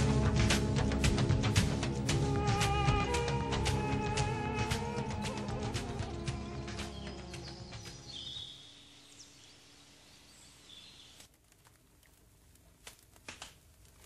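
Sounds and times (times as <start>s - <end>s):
music: 0.0s - 8.7s
low hiss: 1.5s - 14.0s
faint bird chirps: 5.8s - 11.2s.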